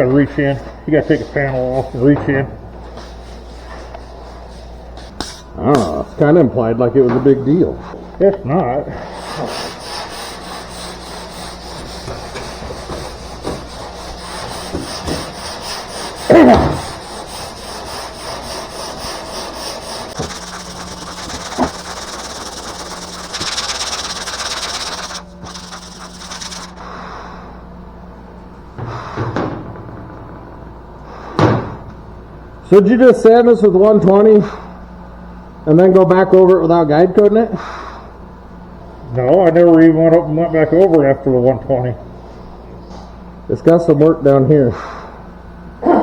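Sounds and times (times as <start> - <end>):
sandpaper rasping on bodywork: 9.0 - 26.8
loud knock: 28.8 - 31.9.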